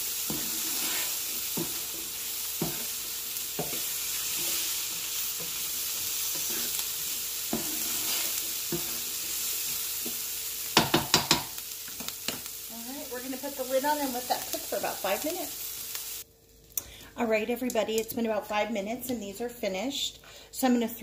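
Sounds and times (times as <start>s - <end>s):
spatula scraping and knocking pan: 0.0s - 12.5s
vegetables sizzling in a skillet: 0.0s - 19.5s.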